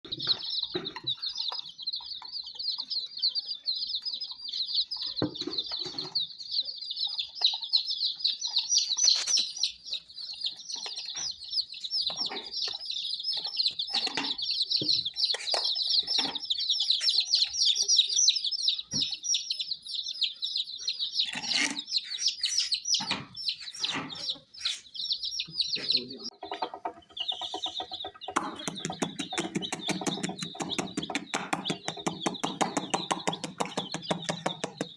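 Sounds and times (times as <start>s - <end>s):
baby chicks peeping: 0.0s - 34.9s
chicks pecking grain taps: 0.1s - 34.9s
rapid even ticking: 26.4s - 34.9s.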